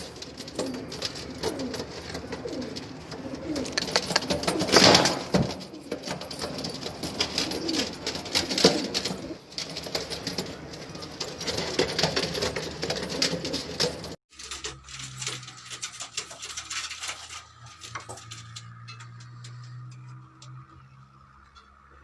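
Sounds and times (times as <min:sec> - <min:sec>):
pigeons cooing: 0:00.0 - 0:14.2
scratching feet and wings: 0:00.0 - 0:21.0.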